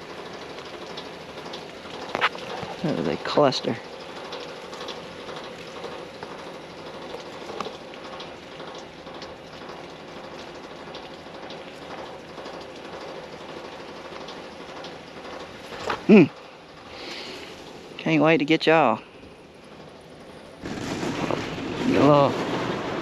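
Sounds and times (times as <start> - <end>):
water spraying from sprinklers: 0.0 - 23.0.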